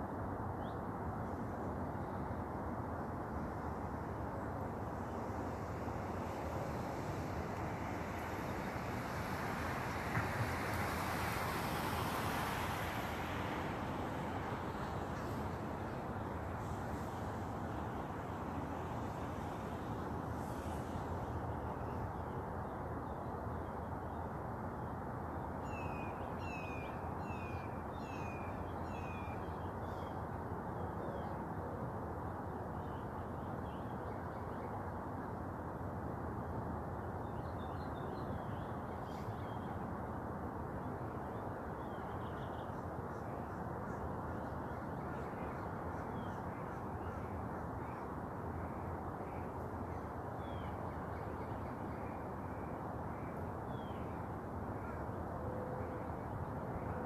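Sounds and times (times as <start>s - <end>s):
steady rushing noise: 2.2s - 21.6s.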